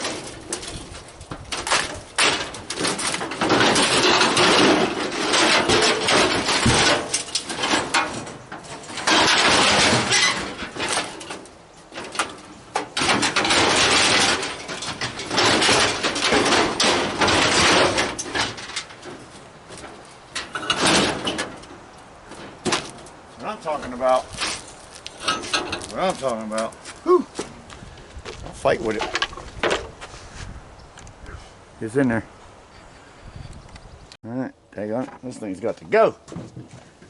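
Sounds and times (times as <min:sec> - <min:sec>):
scrap metal scraping and clanking: 0:00.0 - 0:26.8
sharp knocks: 0:01.4 - 0:08.4.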